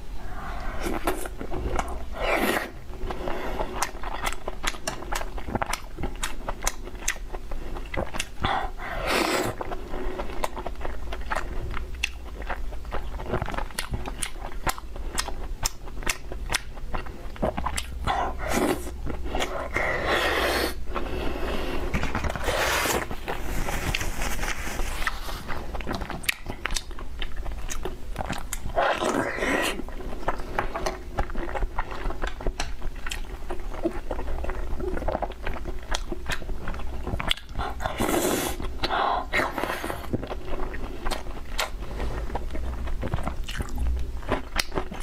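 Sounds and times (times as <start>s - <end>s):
wet chewing clicks and smacks: 3.8s - 8.6s, 10.4s - 18.2s, 25.7s - 28.8s, 30.2s - 37.9s, 40.1s - 45.0s.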